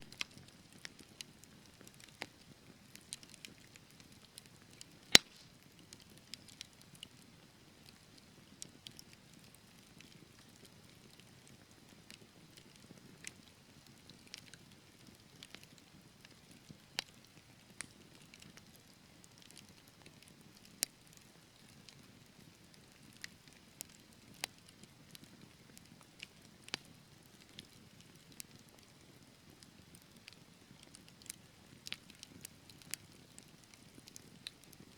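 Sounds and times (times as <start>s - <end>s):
wood fire crackling and popping: 0.0s - 34.9s
hiss of flames: 5.2s - 5.6s.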